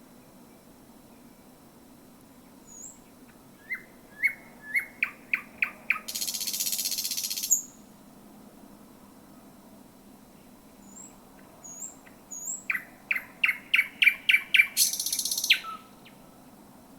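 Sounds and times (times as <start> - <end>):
nightingale singing: 2.5 - 7.8, 10.8 - 16.2.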